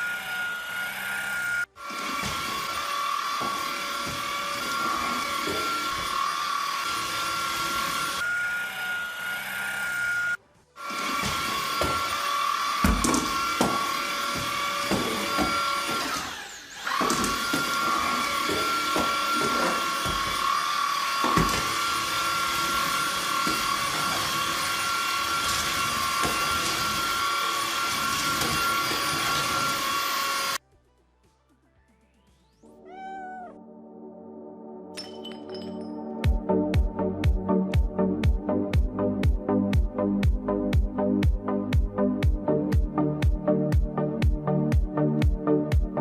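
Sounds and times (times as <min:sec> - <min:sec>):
vacuum cleaner motor whine: 0:00.0 - 0:30.6.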